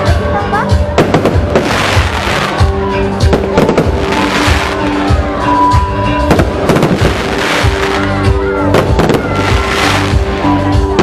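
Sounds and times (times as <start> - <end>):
loud music with steady beat: 0.0 - 11.0
fireworks bursting: 0.9 - 11.0.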